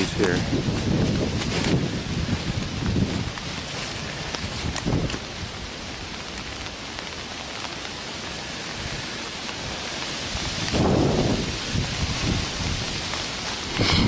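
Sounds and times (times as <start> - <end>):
wind gust buffeting microphone: 0.0 - 5.7, 10.2 - 14.0
falling rain hiss: 0.0 - 14.0.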